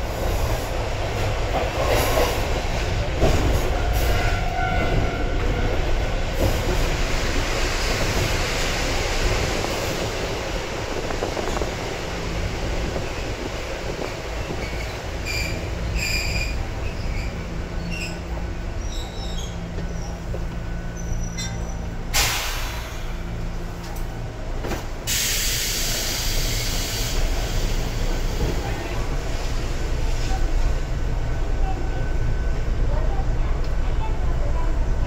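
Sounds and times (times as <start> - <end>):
train wheels rumbling on rails: 0.0 - 35.0
high wheel squeal: 14.4 - 20.2, 20.9 - 21.9.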